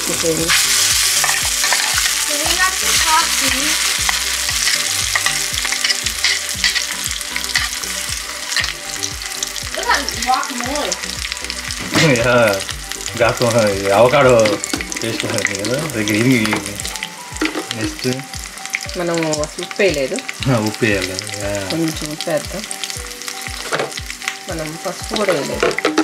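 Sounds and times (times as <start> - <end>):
paste sizzling in hot oil: 0.0 - 26.0
spoon scraping and clicking on pan: 0.5 - 2.2, 3.8 - 7.8, 8.4 - 8.8.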